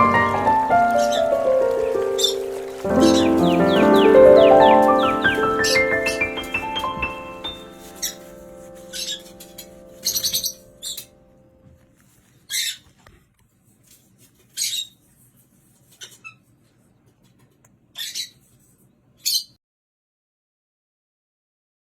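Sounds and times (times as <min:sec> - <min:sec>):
lovebird chirping: 0:00.8 - 0:11.1.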